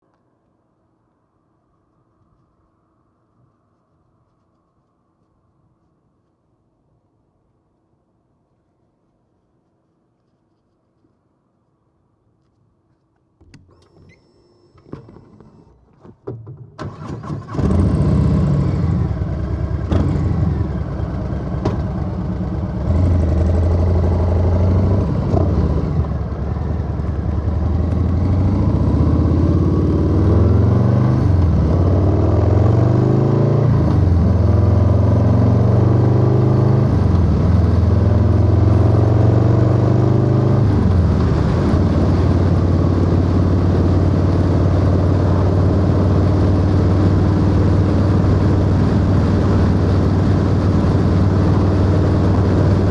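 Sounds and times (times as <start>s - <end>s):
motorcycle engine revving: 16.9s - 52.9s.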